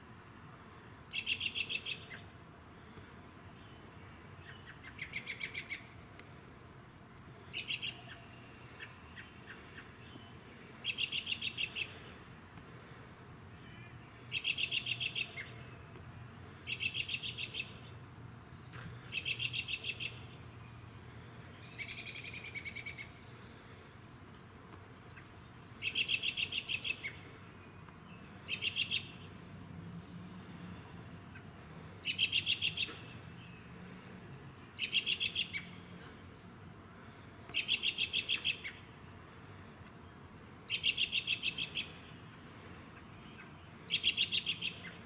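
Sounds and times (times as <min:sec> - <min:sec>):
songbird trilling: 0:01.1 - 0:02.2, 0:07.5 - 0:09.8, 0:10.8 - 0:11.9, 0:13.7 - 0:15.5, 0:16.7 - 0:17.8, 0:19.1 - 0:20.3, 0:25.8 - 0:27.2, 0:28.5 - 0:29.3, 0:32.0 - 0:33.2, 0:34.8 - 0:35.7, 0:37.5 - 0:38.8, 0:40.7 - 0:42.0, 0:43.4 - 0:44.9.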